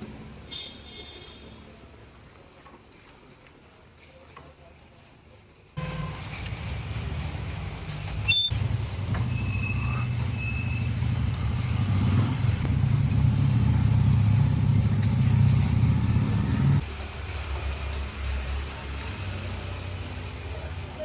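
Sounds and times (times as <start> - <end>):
engine rumbling: 5.8 - 21.0.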